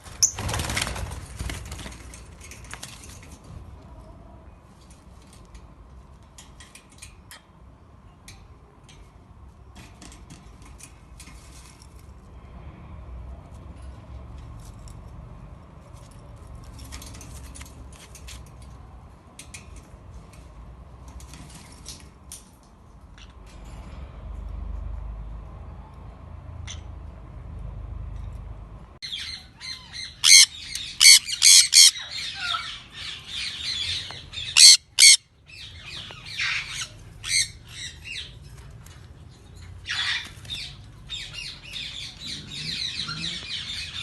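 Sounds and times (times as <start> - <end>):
lovebirds chirping: 29.0 - 38.6, 39.3 - 44.0.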